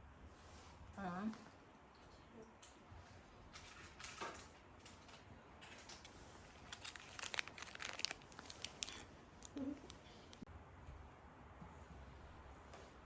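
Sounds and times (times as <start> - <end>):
packaging crinkling and crackling: 3.6 - 10.4.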